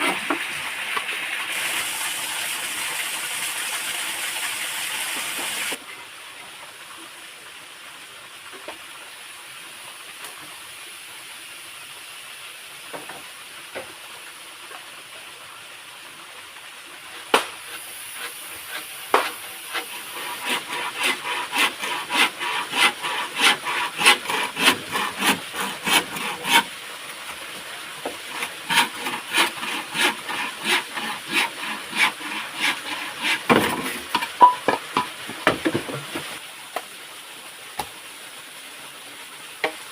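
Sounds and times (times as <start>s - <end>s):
hand saw cutting wood: 0.0s - 0.4s, 17.1s - 26.7s, 28.0s - 36.4s.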